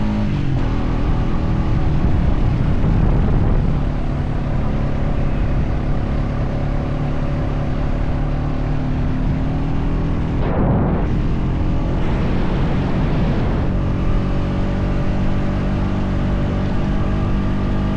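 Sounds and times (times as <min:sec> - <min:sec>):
atv engine running under load: 0:00.0 - 0:17.9
steady rush of noise: 0:07.8 - 0:16.2.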